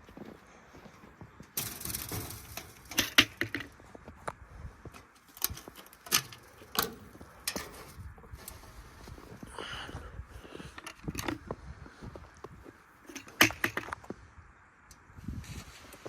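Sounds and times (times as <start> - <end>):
sharp knocks and clatters: 13.1 - 14.0.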